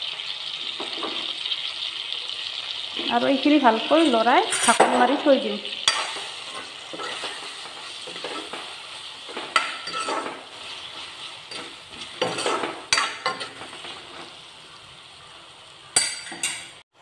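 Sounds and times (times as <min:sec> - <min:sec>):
vegetables sizzling in hot oil: 0:00.0 - 0:17.0
metal spatula scraping a pan: 0:03.8 - 0:15.0, 0:15.8 - 0:16.8.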